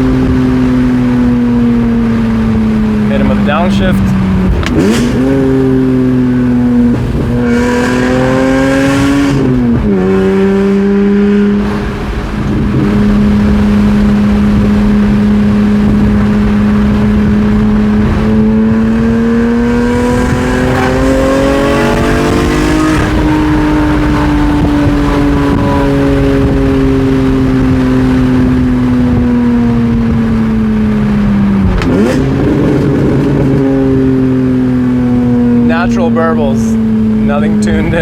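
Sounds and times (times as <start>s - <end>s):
car engine revving through gears: 0.0s - 38.0s.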